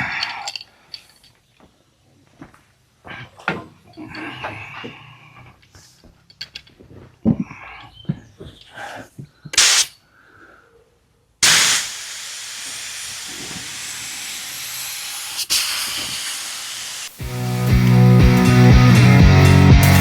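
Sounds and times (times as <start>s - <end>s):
paint spray gun hiss: 9.6s - 9.9s, 11.4s - 20.0s.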